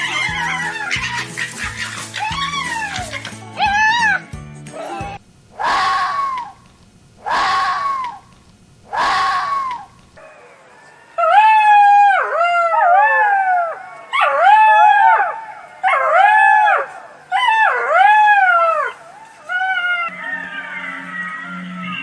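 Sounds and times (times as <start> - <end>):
fox whining yelps: 0.0 - 4.2
fox scream-like bark: 5.6 - 6.6, 7.2 - 8.2, 8.9 - 10.6.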